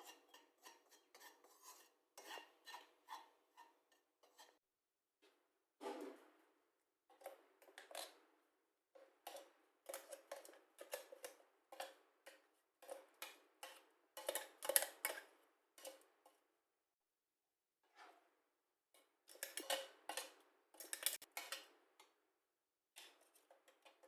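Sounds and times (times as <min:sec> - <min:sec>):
kitchen utensils clicking: 0:19.3 - 0:21.5.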